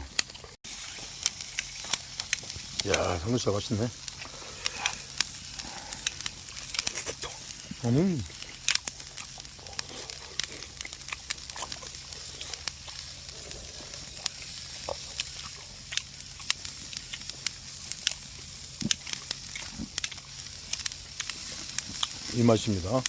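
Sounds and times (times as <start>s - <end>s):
fire pops and crackles: 0.0s - 23.0s
meat sizzling on a grill: 0.0s - 23.0s.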